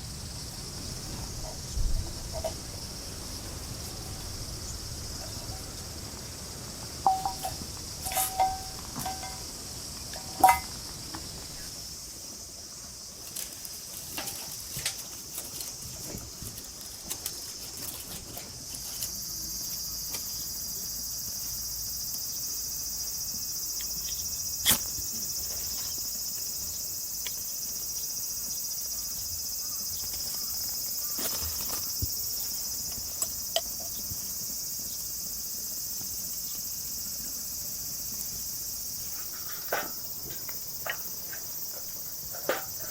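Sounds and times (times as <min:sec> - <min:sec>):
high-pitched insect chorus: 0:00.0 - 0:42.9
sharp clinks and taps: 0:07.0 - 0:09.5, 0:10.1 - 0:10.8.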